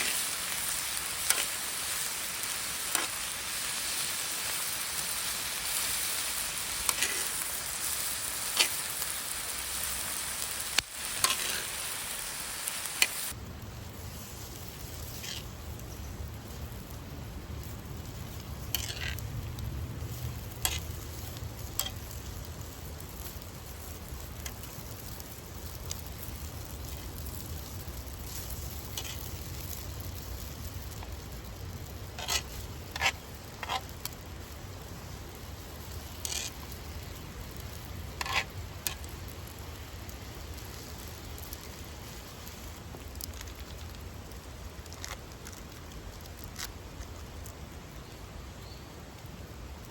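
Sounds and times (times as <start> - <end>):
food sizzling in a pan: 0.0 - 13.4, 20.1 - 42.8
sharp clicks and crackles: 0.0 - 13.4, 36.1 - 41.8, 42.4 - 47.7.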